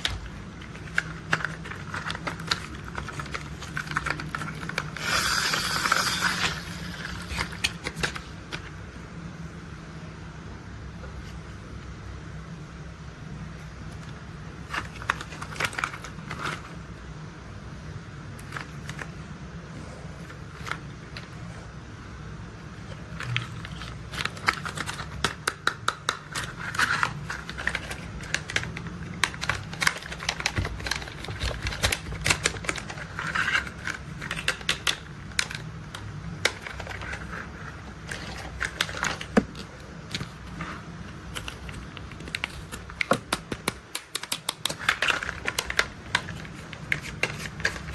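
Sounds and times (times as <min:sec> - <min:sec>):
steady low hum: 0:00.0 - 0:47.9
plastic toy clicks and rattles: 0:00.8 - 0:08.2, 0:23.2 - 0:37.3, 0:41.5 - 0:47.9.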